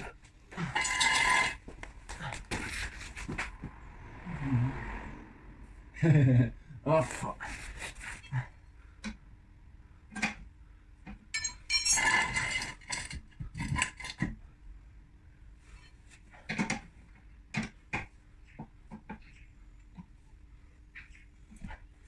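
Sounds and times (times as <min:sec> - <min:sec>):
metal tools clinking and knocking: 0:00.0 - 0:03.2, 0:11.3 - 0:14.3
rattling metal clatter: 0:00.0 - 0:03.6, 0:11.4 - 0:14.3.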